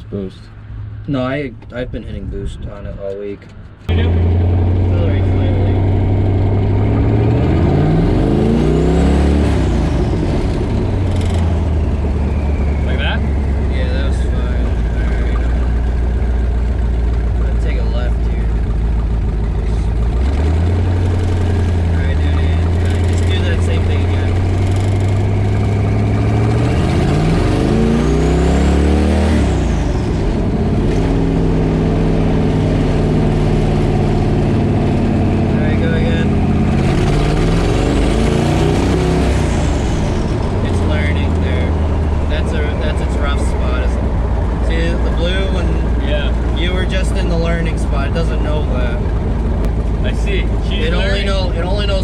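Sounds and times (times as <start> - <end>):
car engine revving: 0.0 - 52.0
turbo whistle: 11.6 - 13.8.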